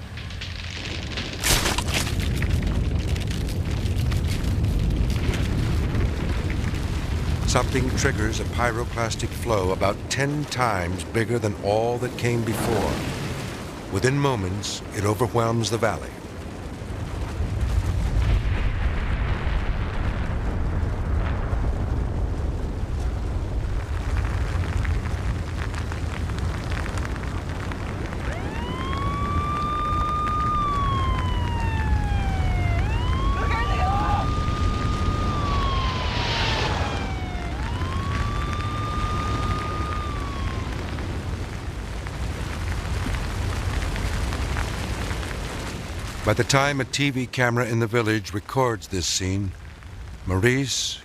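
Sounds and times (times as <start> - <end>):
deep continuous volcanic rumble: 0.0 - 51.0
siren wailing: 28.0 - 41.8.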